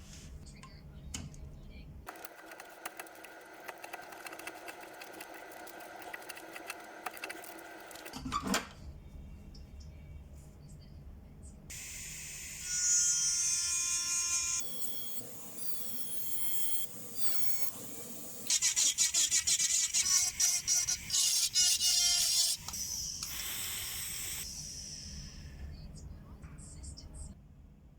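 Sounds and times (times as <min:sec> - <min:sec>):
scratchy working noise: 0:02.1 - 0:08.2, 0:11.7 - 0:25.1
power tool motor whining: 0:11.7 - 0:25.1.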